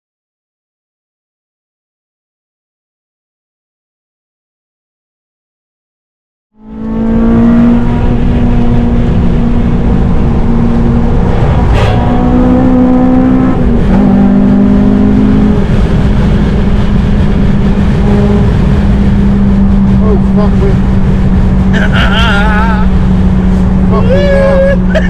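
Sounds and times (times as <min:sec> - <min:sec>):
car engine at high revs: 0:06.6 - 0:25.0.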